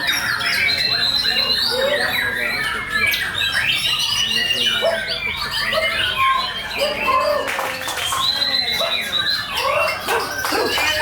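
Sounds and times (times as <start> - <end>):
bird singing whistling song: 8.0 - 11.0.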